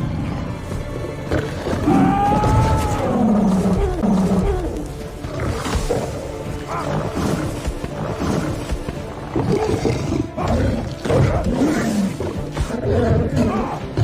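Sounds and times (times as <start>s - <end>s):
dramatic film score: 0.0s - 14.0s
lion roaring and snarling: 0.0s - 14.0s.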